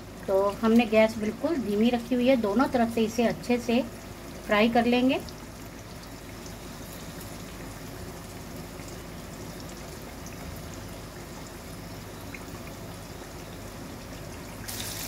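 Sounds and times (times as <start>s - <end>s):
gentle sizzle of frying: 0.0s - 15.0s.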